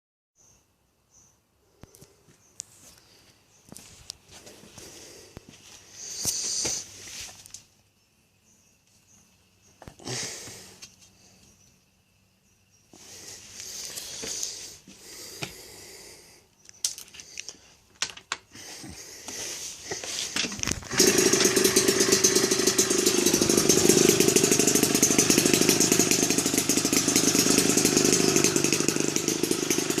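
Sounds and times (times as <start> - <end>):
two-stroke engine buzzing: 20.2 - 30.0.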